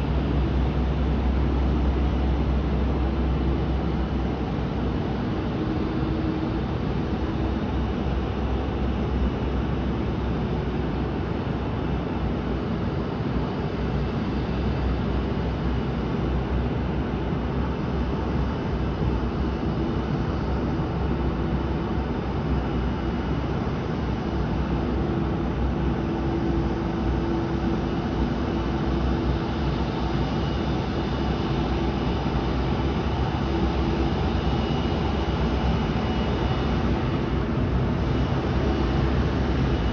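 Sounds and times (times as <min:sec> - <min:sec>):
aircraft engine noise: 0:00.0 - 0:39.9
faint high whine: 0:00.0 - 0:39.9
low hum: 0:24.8 - 0:39.9.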